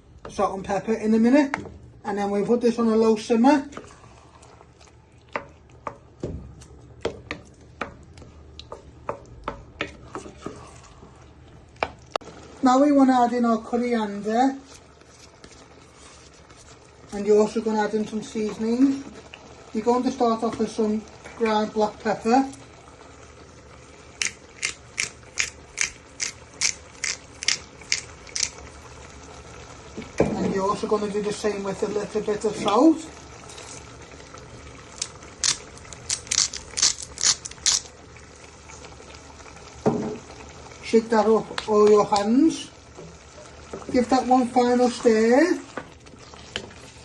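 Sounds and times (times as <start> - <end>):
wooden spoon knocking on pan: 39.8 - 40.2.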